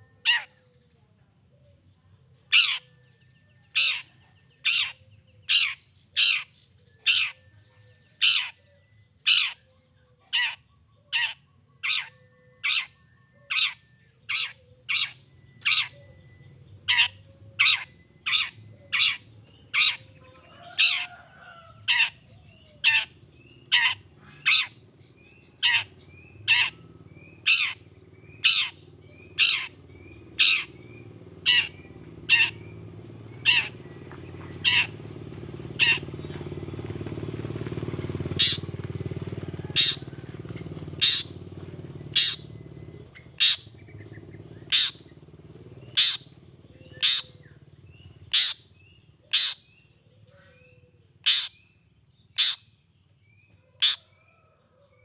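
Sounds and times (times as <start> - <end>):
bird giving short harsh calls: 38.4 - 38.6, 41.0 - 41.4, 42.1 - 42.4, 43.4 - 43.7, 44.7 - 45.0, 46.0 - 46.3, 47.0 - 47.4, 48.3 - 48.6, 49.3 - 49.7, 51.2 - 51.6, 52.3 - 52.7, 53.8 - 54.1.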